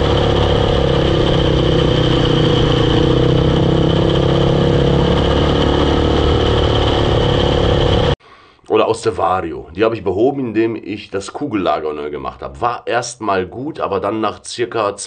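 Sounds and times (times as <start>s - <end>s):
high gearbox whine: 0.0s - 8.2s
quad bike engine running: 0.0s - 8.2s.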